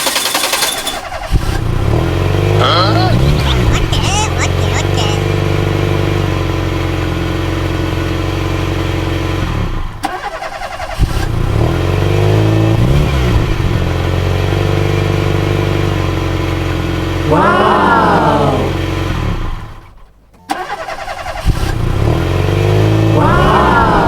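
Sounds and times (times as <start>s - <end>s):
vehicle engine revving: 0.1s - 3.8s, 5.2s - 24.0s
engine click: 10.0s - 11.4s, 20.1s - 21.9s.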